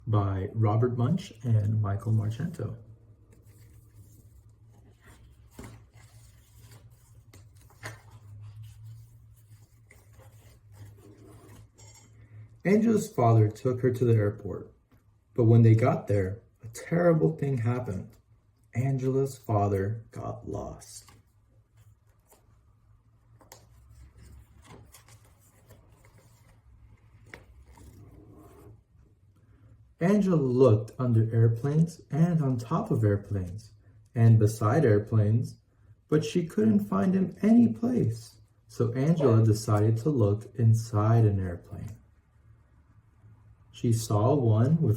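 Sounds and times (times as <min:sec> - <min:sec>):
low electrical hum: 0:00.0 - 0:44.9
book rustling and tapping: 0:03.2 - 0:11.8, 0:21.0 - 0:28.8.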